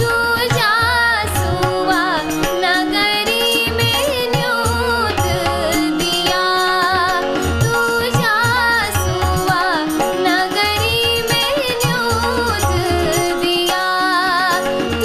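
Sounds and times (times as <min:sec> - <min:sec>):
woman singing folk song: 0:00.0 - 0:15.0.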